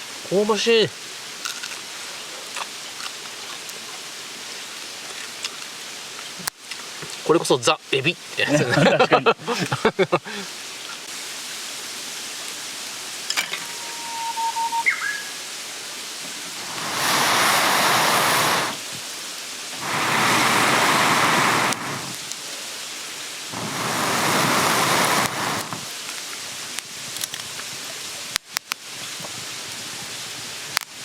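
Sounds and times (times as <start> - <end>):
slurping noodles: 16.6 - 18.9, 19.8 - 22.2, 23.6 - 25.9.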